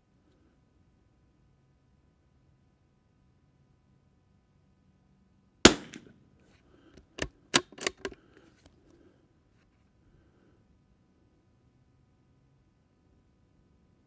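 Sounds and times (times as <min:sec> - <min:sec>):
rifle bolt metallic clicks: 0:05.7 - 0:06.1, 0:07.0 - 0:08.2
rifle shot with echo: 0:05.7 - 0:06.2.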